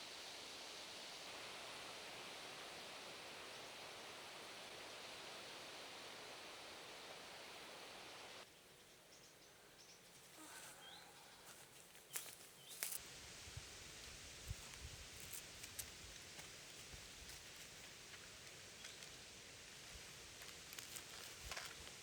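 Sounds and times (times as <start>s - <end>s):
faint bird chirps: 8.5s - 13.0s.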